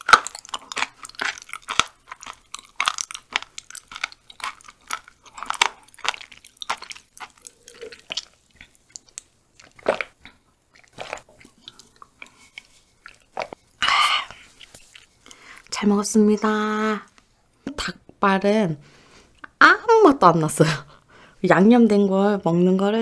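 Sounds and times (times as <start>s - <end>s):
chewing crunchy food: 0.0s - 15.8s
swallowing: 0.3s - 15.4s.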